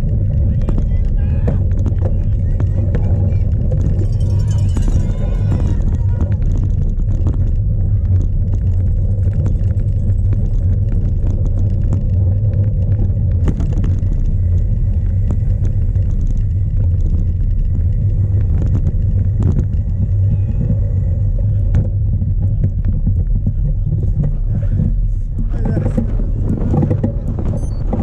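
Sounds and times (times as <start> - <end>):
bike knocking and rattling: 0.0 - 28.0
bike tyres rumbling on rough ground: 0.0 - 28.0
wind buffeting microphone: 0.0 - 28.0.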